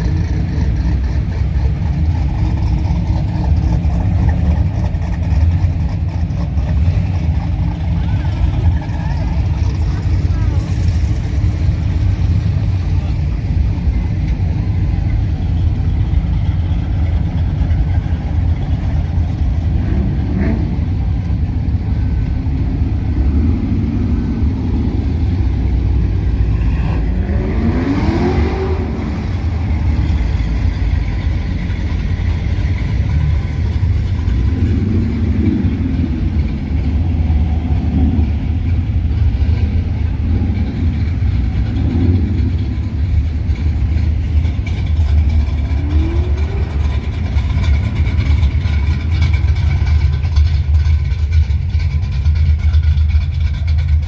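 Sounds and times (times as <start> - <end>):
car engines rumbling: 0.0 - 54.0
engine revving: 19.7 - 21.0, 26.2 - 30.3.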